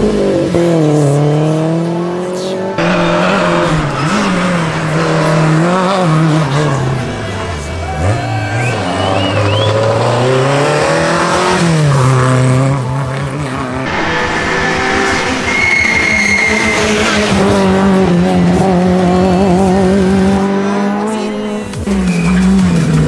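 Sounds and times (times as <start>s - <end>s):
rally car engine revving: 0.0s - 23.0s
tyre squeal: 14.2s - 17.6s.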